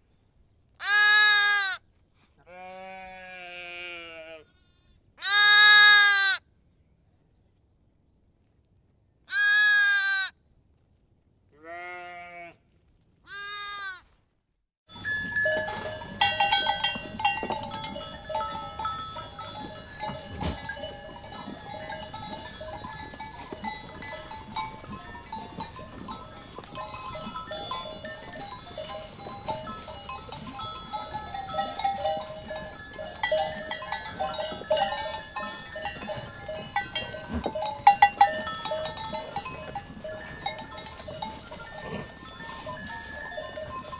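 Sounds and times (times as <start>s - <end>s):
animal bleating: 0.8s - 1.8s, 2.4s - 6.4s, 9.3s - 10.3s, 11.6s - 12.6s, 13.3s - 14.0s
flock bleating: 2.5s - 4.6s, 13.3s - 14.0s
bells clinking: 14.9s - 43.9s.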